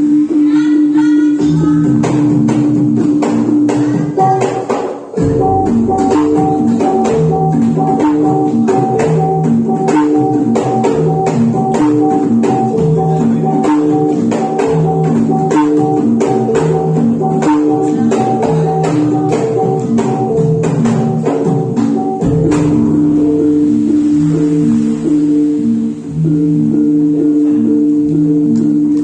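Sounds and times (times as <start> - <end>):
sharp percussion strokes: 1.6 - 29.0
metallophones playing melody: 5.2 - 29.0
deep low gong stroke: 22.2 - 27.8.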